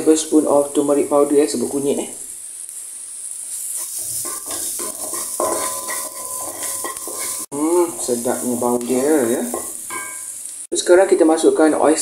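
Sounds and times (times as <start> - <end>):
garlic and onion sizzling in oil: 0.0 - 10.8
wooden spatula scraping pan: 3.6 - 10.3.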